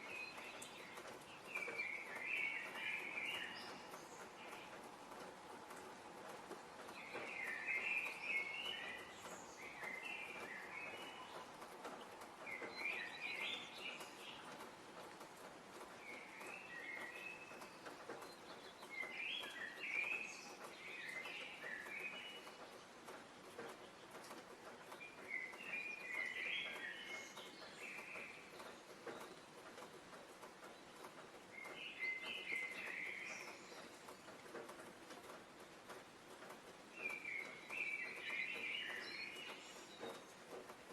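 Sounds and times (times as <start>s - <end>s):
faint outdoor background hiss: 0.0s - 40.9s
faint ticks: 0.0s - 40.9s
songbird singing short clear notes: 12.5s - 14.6s, 31.6s - 33.9s, 37.0s - 40.3s.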